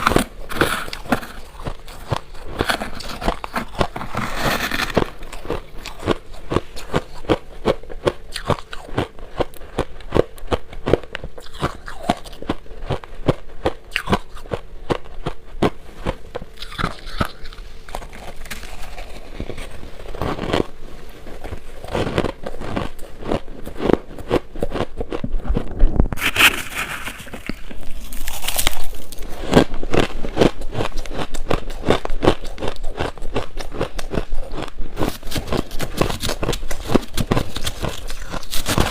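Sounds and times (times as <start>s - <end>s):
shaved ice crunching: 26.2s - 29.7s, 35.0s - 38.9s.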